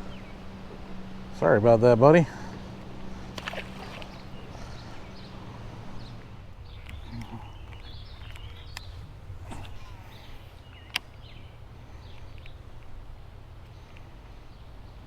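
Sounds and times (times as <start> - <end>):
faint bird calls: 0.0 - 1.4, 2.0 - 12.9
low steady hum: 0.0 - 15.0
sharp clicks: 10.7 - 11.2.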